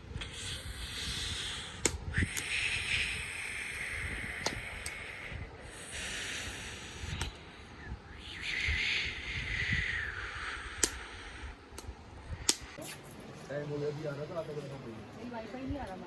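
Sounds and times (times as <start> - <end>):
bonfire hissing: 0.2 - 11.6.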